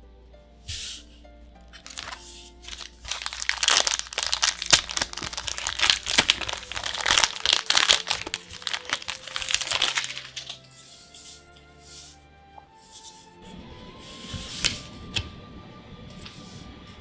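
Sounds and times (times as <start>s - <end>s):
wrapper tearing and crinkling: 1.7s - 10.7s.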